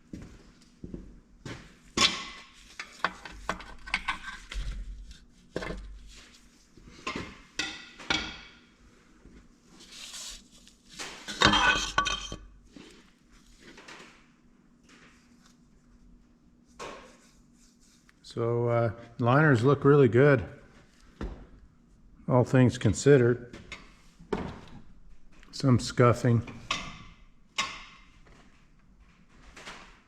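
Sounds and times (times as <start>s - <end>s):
metal parts clanking on bench: 11.3s - 12.4s.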